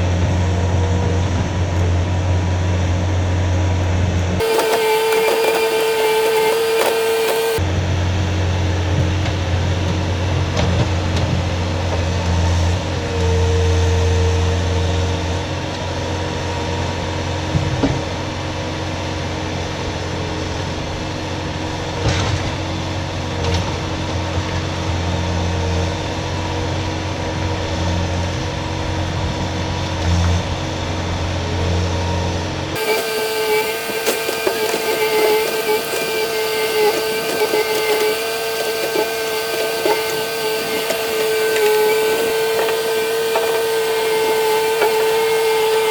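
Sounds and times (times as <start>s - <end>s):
engine running: 4.4s - 7.6s, 32.8s - 45.9s
hydraulic whine: 4.4s - 7.6s, 32.8s - 45.9s.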